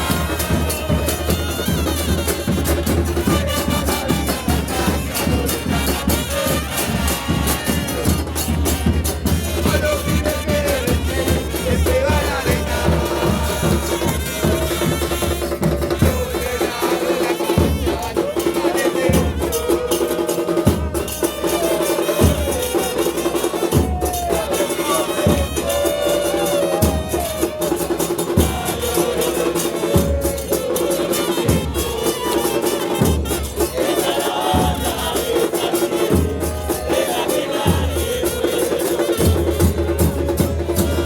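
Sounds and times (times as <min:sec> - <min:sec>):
fans chanting: 0:00.0 - 0:41.0
bass drums beating: 0:26.8 - 0:29.2, 0:29.8 - 0:30.5.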